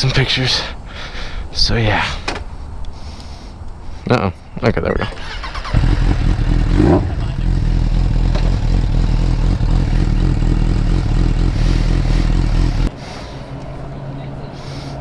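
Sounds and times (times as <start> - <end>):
motorcycle engine rumbling: 5.0 - 12.9.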